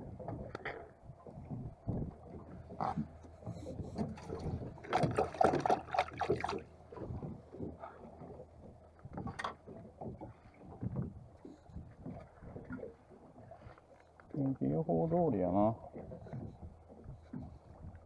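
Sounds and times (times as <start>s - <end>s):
wind buffeting microphone: 0.0s - 5.3s, 6.4s - 13.6s
water lapping against boat hull: 0.0s - 18.0s.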